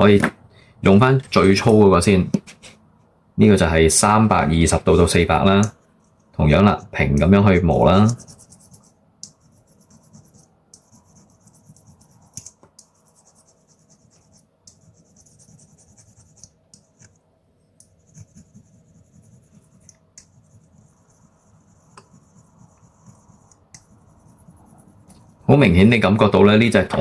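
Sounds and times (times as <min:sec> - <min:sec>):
file scratching on plastic: 0:07.8 - 0:17.2, 0:17.9 - 0:25.6.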